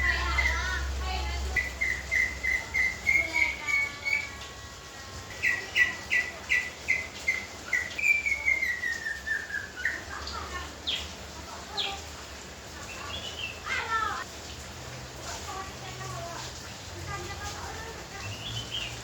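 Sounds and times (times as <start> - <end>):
bird singing whistled notes: 1.4 - 4.5, 5.3 - 10.1.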